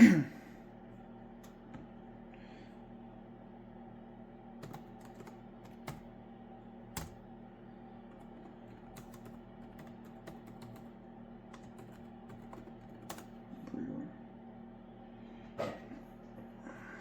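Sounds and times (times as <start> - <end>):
steady low hum: 0.0 - 17.0
computer keyboard typing: 4.6 - 6.1, 6.9 - 7.2, 8.1 - 13.4.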